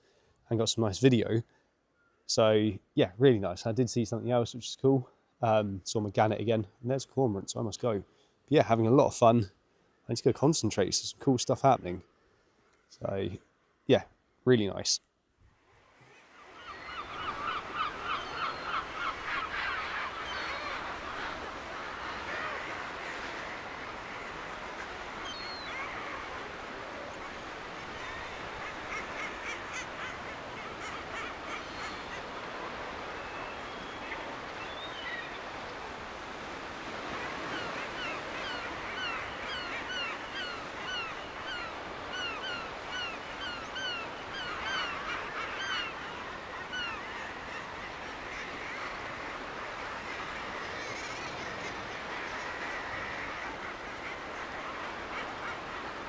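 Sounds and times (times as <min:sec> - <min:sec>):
gulls calling: 0:16.2 - 0:56.0.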